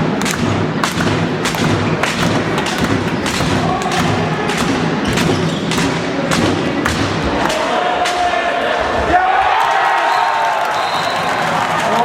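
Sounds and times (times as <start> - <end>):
thumps in a sports hall: 0.0 - 9.4
crowd noise: 0.0 - 12.0.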